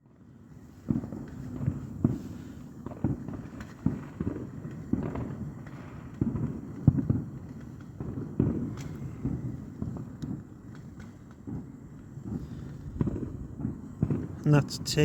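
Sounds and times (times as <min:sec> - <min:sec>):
distant fireworks booming: 0:00.1 - 0:15.0.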